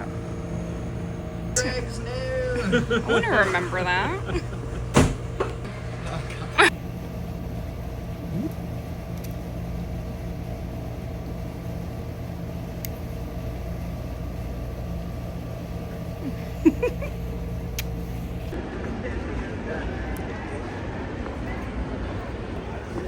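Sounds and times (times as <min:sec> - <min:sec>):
car engine hum from inside: 0:00.0 - 0:18.6
brief clunks: 0:04.8 - 0:05.7.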